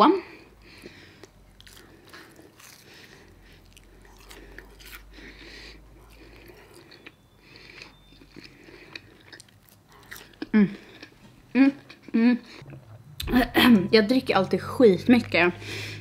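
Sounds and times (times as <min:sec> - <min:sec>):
person chewing crunchy food: 0:00.6 - 0:13.2.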